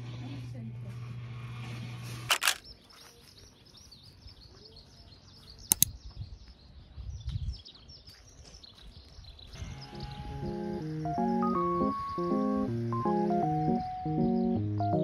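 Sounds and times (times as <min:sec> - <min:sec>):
small birds chirping: 0:01.5 - 0:15.0
sharp double clicks: 0:05.7 - 0:06.0.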